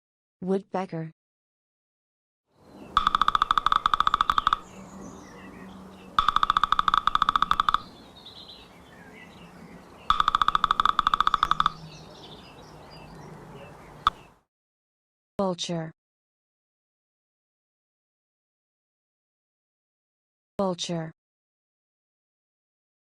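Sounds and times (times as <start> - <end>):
birds chirping faintly: 2.5 - 14.4
woodpecker drumming on wood: 3.0 - 4.8, 6.1 - 8.0, 10.1 - 12.0, 14.0 - 14.3.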